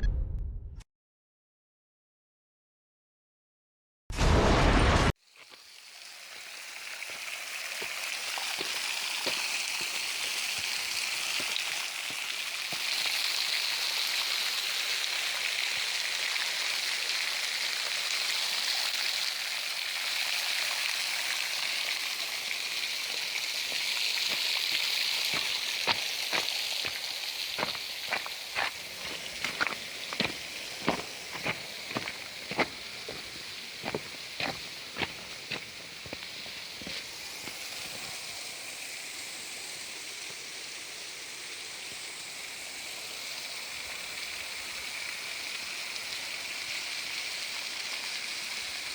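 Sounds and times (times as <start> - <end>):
waterfall rushing water: 20.7 - 38.1.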